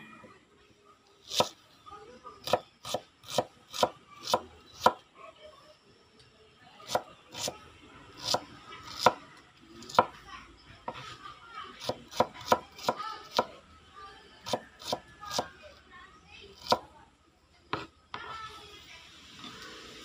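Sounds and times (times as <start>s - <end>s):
knife chopping on wooden board: 2.4s - 5.0s, 8.2s - 9.2s, 11.8s - 13.5s.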